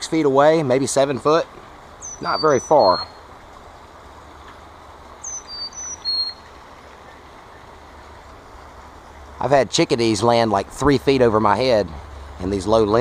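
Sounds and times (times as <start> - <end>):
songbird whistling: 2.0 - 3.2, 5.2 - 7.7.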